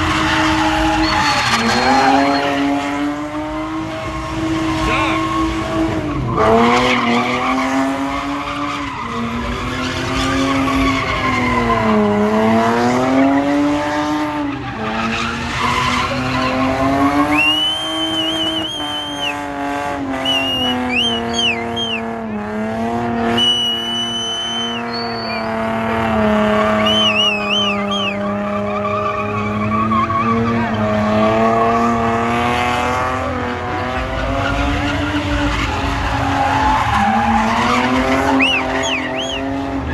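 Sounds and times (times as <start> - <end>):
tyres squealing: 0.0 - 3.0, 14.5 - 19.4, 20.2 - 22.0, 23.3 - 25.5, 26.6 - 32.0, 33.9 - 39.9
car engine at high revs: 0.0 - 39.9.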